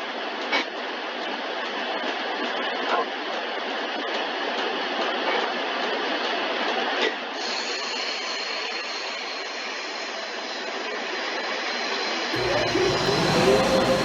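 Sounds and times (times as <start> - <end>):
car wash water spray hissing: 12.4 - 14.0.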